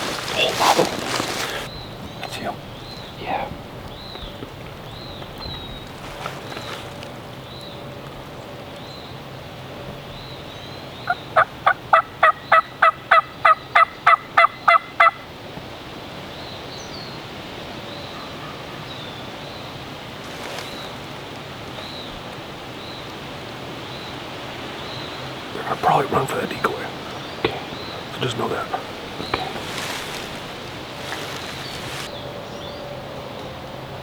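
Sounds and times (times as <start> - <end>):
steady wind: 0.0 - 8.9, 19.2 - 34.0.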